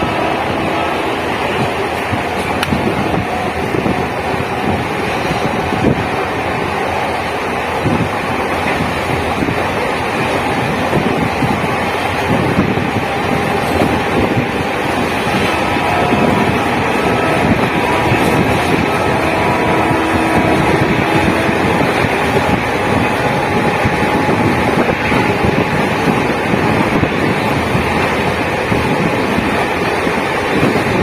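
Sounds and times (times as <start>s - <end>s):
train rumbling: 0.0s - 31.0s
wind buffeting microphone: 0.0s - 31.0s.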